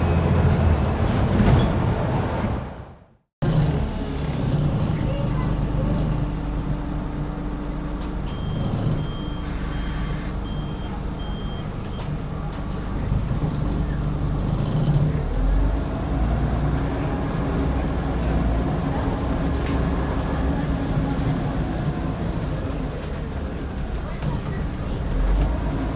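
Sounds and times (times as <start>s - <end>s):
bus engine running: 0.0s - 25.9s
short high beeps: 8.3s - 11.6s.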